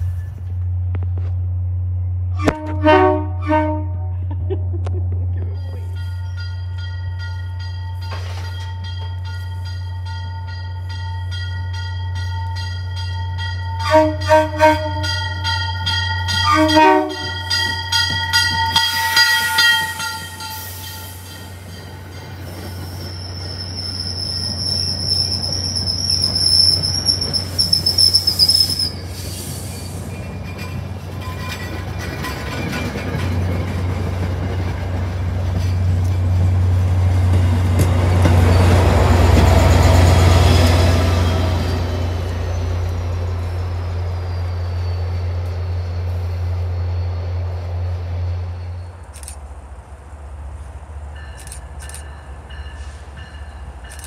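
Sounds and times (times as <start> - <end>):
train rumbling: 0.0 - 54.0
train horn blasts: 2.3 - 4.2, 13.8 - 15.2, 16.3 - 17.5
high-pitched wheel squeal: 22.6 - 31.7, 42.4 - 49.0.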